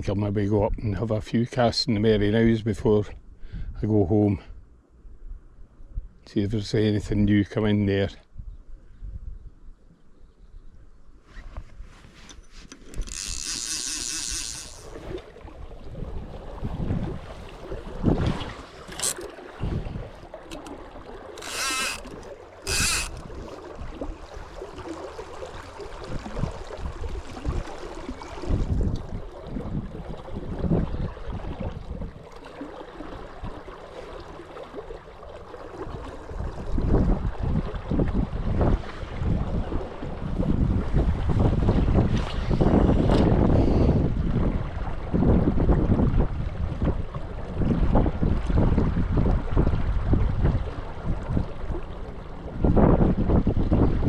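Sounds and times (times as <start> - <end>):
wading through river water: 11.4 - 54.0
wind buffeting microphone: 14.2 - 20.3, 25.9 - 32.3, 36.2 - 54.0.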